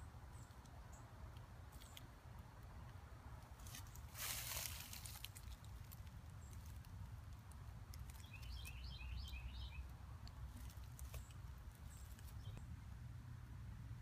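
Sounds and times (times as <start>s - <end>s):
bird chirping: 0.0s - 1.2s, 8.0s - 12.8s
low steady rumble: 0.0s - 14.0s.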